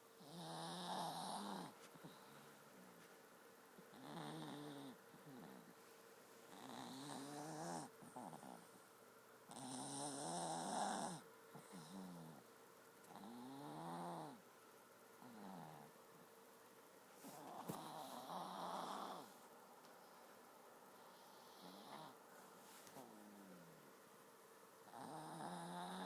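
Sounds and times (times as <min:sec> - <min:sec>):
dog snoring: 0:00.2 - 0:02.2, 0:03.8 - 0:05.8, 0:06.5 - 0:08.8, 0:09.5 - 0:12.5, 0:13.1 - 0:14.4, 0:15.2 - 0:16.0, 0:17.3 - 0:19.4, 0:21.1 - 0:22.2, 0:24.9 - 0:26.0.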